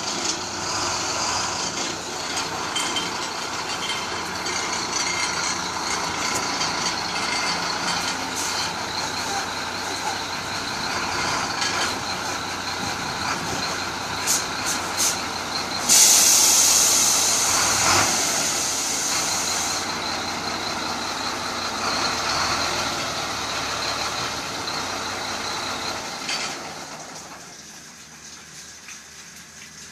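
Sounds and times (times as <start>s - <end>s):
truck engine running: 0.0s - 27.5s
loud hiss of released air: 14.3s - 15.2s, 15.8s - 19.8s.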